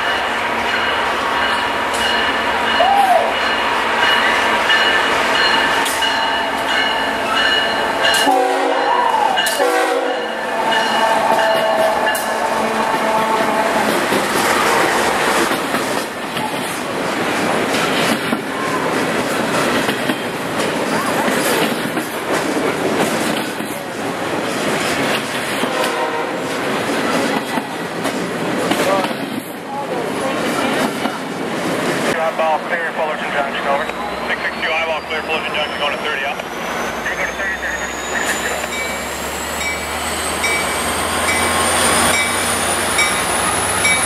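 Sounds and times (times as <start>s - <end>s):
train rail noise and wheel clatter: 0.0s - 44.0s
train air horn: 8.2s - 15.0s, 25.6s - 26.5s.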